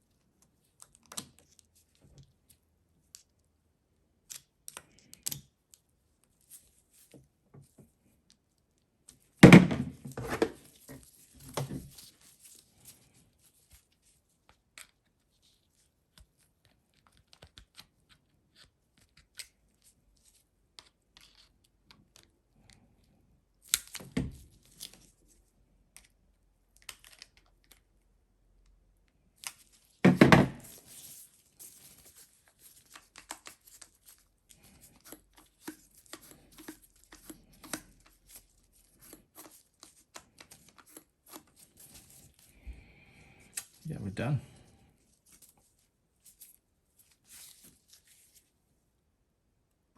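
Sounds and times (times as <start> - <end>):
faint clicks and taps of tools: 4.3 - 5.8.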